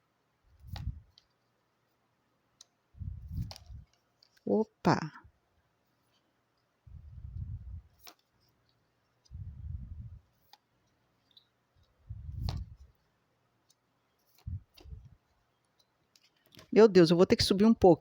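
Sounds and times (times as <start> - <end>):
sharp clicks of cards: 10.4 - 12.9.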